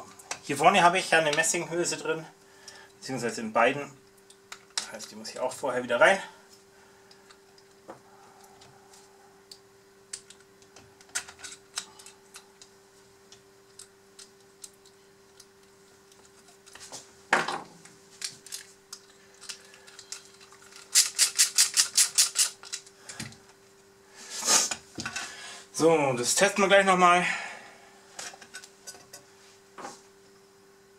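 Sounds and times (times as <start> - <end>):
faint steady hum: 0.0 - 30.9.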